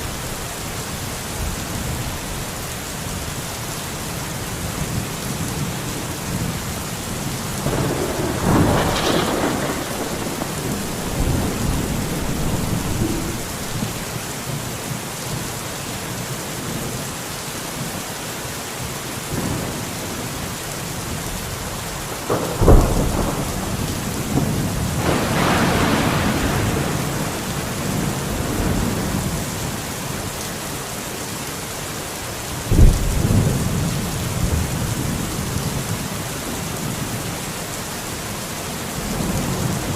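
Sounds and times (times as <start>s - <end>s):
steady rain: 0.0s - 39.9s
thunder rumbling and cracking: 7.4s - 14.2s, 21.8s - 29.8s, 32.7s - 36.0s.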